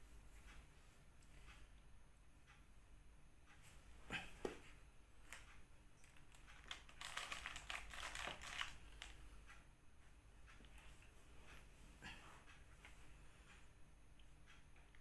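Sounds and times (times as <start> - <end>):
crinkling rustle: 5.3 - 9.3.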